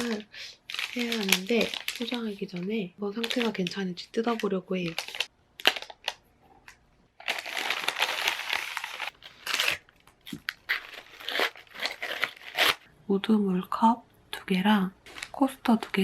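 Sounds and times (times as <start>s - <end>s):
packaging crinkling and rustling: 0.0s - 12.8s, 15.0s - 16.0s.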